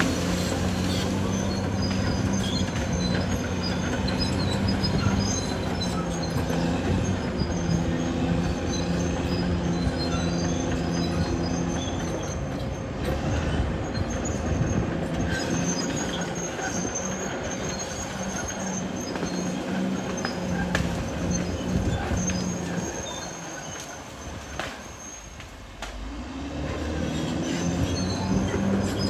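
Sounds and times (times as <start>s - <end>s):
bulldozer diesel engine under load: 0.0s - 29.0s
high track squeaks: 0.0s - 29.0s
steel tracks clanking: 0.0s - 29.0s.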